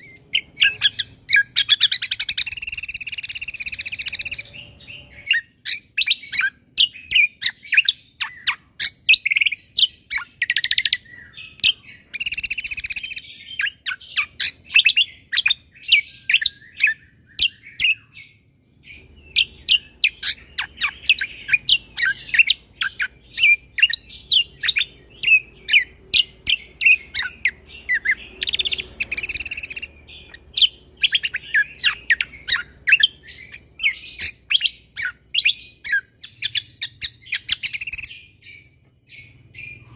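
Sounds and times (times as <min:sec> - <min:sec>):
songbird singing high chirps: 0:00.0 - 0:39.9.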